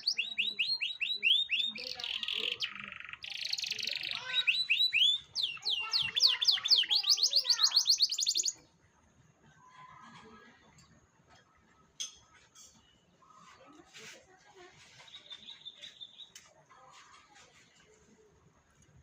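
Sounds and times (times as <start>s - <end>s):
canary singing trills: 0.0s - 8.6s, 14.9s - 16.4s.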